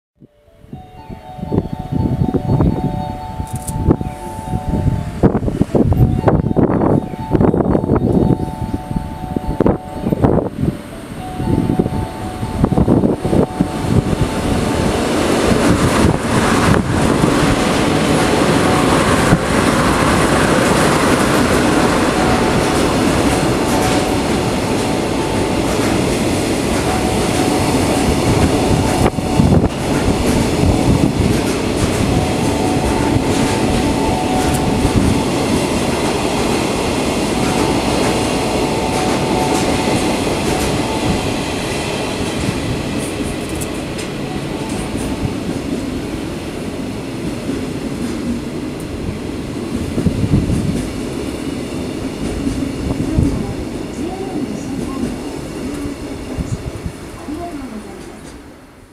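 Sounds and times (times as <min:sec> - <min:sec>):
train wheels clattering over joints: 0:29.8 - 0:32.4.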